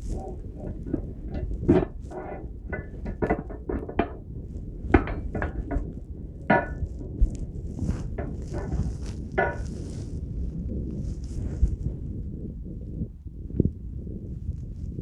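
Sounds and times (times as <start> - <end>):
metallic clinks and knocks: 0.0 - 4.2, 4.9 - 5.9, 6.5 - 9.8.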